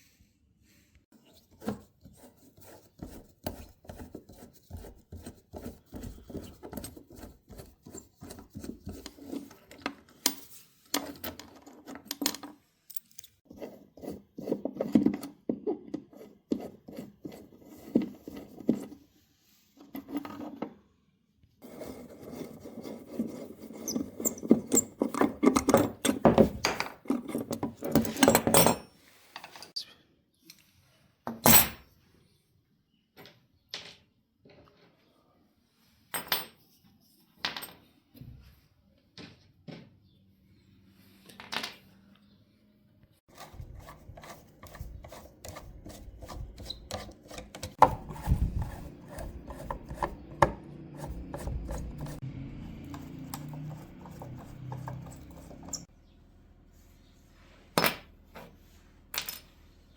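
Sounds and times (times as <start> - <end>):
hand scraping on wood: 43.3 - 52.2, 53.2 - 55.9.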